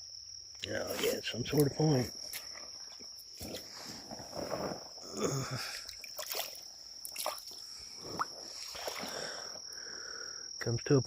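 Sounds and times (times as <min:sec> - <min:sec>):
insect trilling: 0:00.0 - 0:11.0
creek water splashing: 0:05.6 - 0:09.6.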